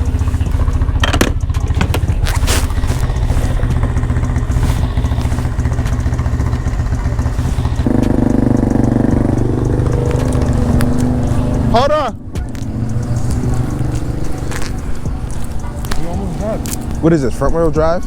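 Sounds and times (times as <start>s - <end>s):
quad engine idling: 0.0s - 18.0s
second louder engine: 0.0s - 18.0s
sharp clicks and knocks: 0.7s - 2.4s.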